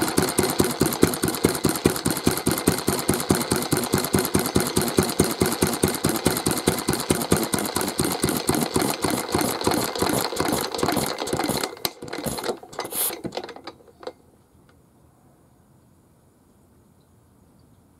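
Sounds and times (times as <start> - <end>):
single-cylinder stationary engine running: 0.0 - 14.1.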